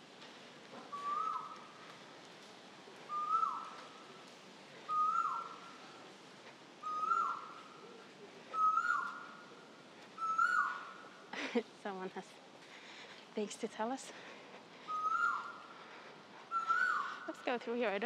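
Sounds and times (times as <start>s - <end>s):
bird whistling: 0.9s - 1.5s, 3.1s - 3.7s, 4.9s - 5.6s, 6.8s - 7.5s, 8.6s - 9.2s, 10.2s - 10.7s, 14.9s - 15.6s, 16.5s - 17.1s.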